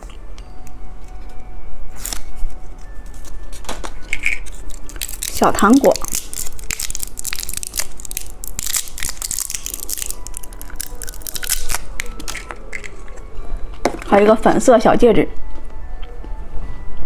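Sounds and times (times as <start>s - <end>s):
plastic packaging crinkling: 1.9s - 14.2s.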